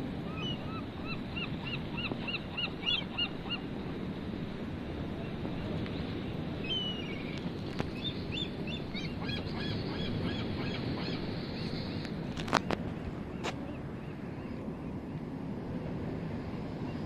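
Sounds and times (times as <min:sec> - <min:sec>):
wind and surf: 0:00.0 - 0:17.0
bird calling: 0:00.3 - 0:03.7, 0:06.6 - 0:14.8.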